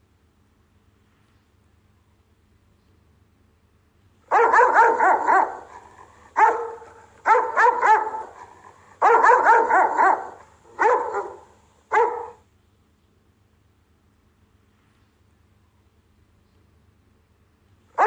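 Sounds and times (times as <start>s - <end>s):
dog barking: 4.3s - 12.4s.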